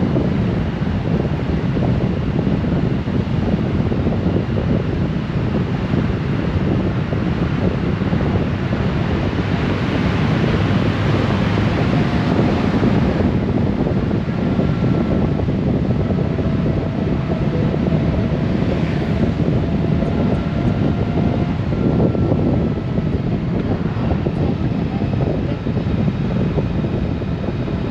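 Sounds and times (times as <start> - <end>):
motorcycle engine drone: 0.0 - 27.9
road noise: 0.0 - 27.9
wind buffeting microphone: 0.0 - 27.9
faint high whine: 13.9 - 25.6.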